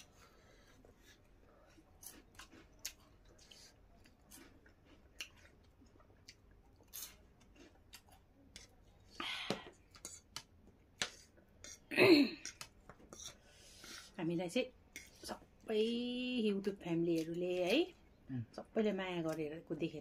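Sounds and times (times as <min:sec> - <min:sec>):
chewing: 0:00.0 - 0:11.8.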